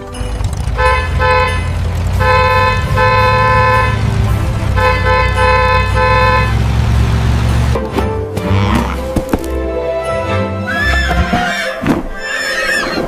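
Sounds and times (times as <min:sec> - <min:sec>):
low engine rumble: 0:00.0 - 0:07.9
vehicle horn honking: 0:00.7 - 0:06.8.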